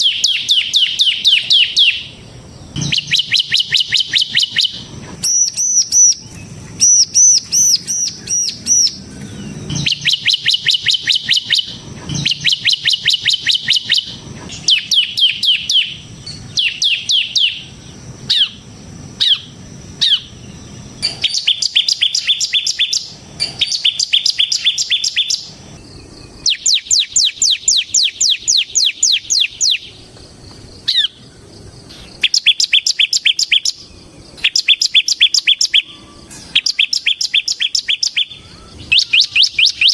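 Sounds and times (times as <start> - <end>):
bird trilling song: 0.0 - 39.9.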